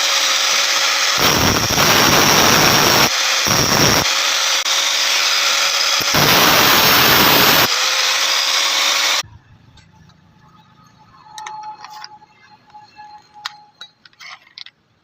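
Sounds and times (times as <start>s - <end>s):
power tool running on metal: 0.0s - 9.2s.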